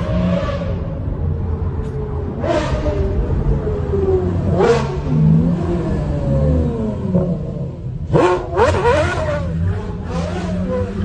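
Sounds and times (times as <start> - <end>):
sports car engine revving: 3.9 - 11.0.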